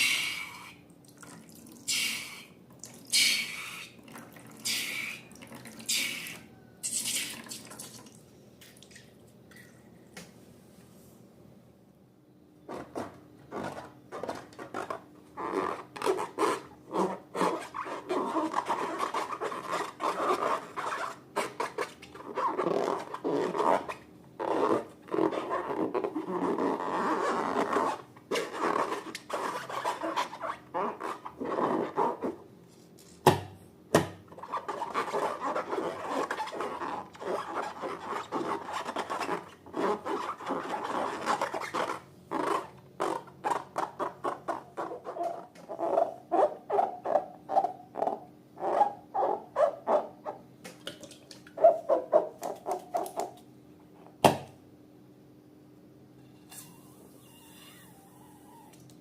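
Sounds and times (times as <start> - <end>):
slime rubbing and rasping: 12.8 - 32.4, 34.4 - 50.4.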